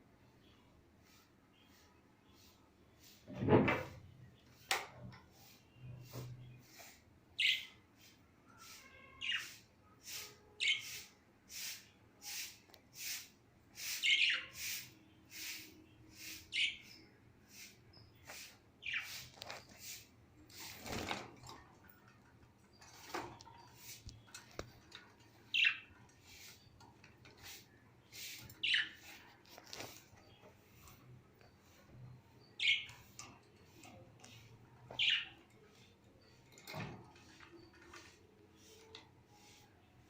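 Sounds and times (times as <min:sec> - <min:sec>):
lovebirds chirping: 0:05.4 - 0:07.8, 0:13.0 - 0:21.1, 0:22.7 - 0:26.8, 0:27.4 - 0:36.4.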